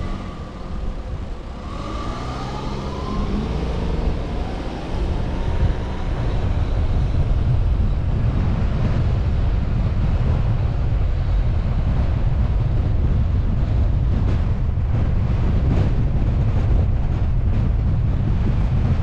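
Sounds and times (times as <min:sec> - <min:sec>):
car engine speeding up: 0:00.0 - 0:09.6
road and wind rumble: 0:00.0 - 0:19.0.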